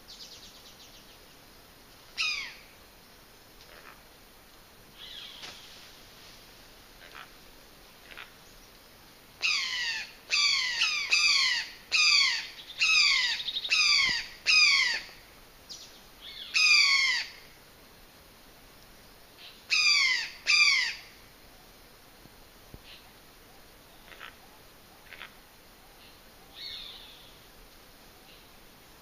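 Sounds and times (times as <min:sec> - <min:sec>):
bird harsh calls: 0:09.4 - 0:15.1.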